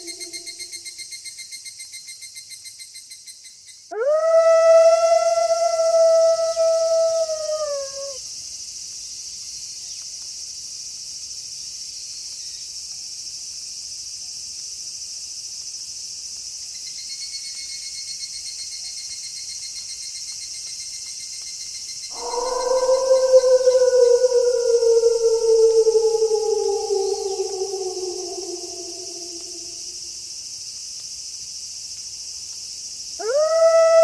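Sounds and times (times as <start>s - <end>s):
wolf howling: 0.0s - 0.6s, 3.9s - 8.2s, 22.1s - 30.0s, 33.2s - 34.0s
crickets chirping: 0.0s - 0.9s, 3.9s - 8.2s, 22.1s - 30.2s
pulsing insect trill: 0.0s - 0.9s, 4.0s - 8.2s, 22.1s - 30.1s.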